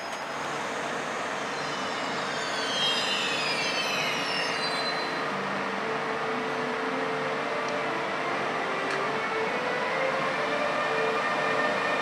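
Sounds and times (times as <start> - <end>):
wheels and brakes squealing: 0.0 - 5.3.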